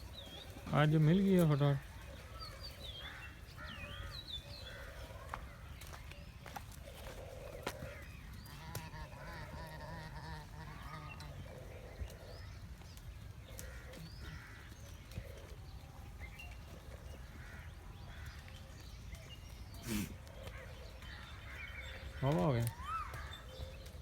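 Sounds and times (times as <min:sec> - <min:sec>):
goats bleating: 0:08.5 - 0:11.3.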